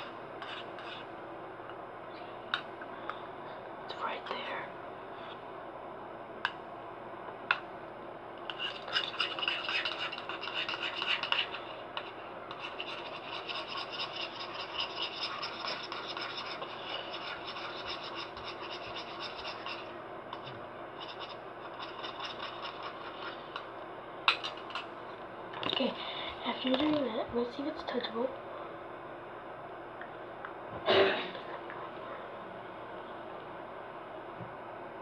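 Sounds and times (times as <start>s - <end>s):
utensil scraping in a bowl: 0.4s - 1.1s, 8.5s - 23.7s, 24.3s - 24.9s.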